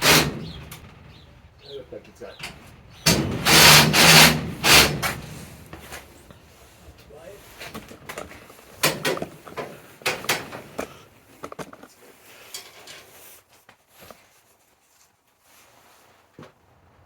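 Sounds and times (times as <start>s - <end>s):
knocks and clatter of frame parts: 2.4s - 13.1s.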